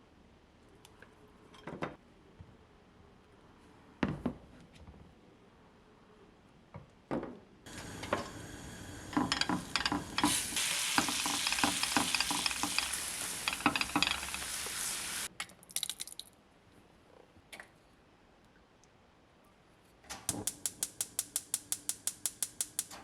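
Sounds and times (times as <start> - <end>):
food sizzling in frying pan: 7.7 - 15.3.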